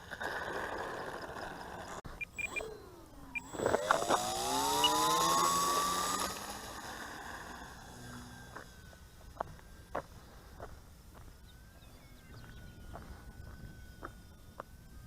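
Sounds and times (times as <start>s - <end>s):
model plane motor whining: 0.0s - 9.7s.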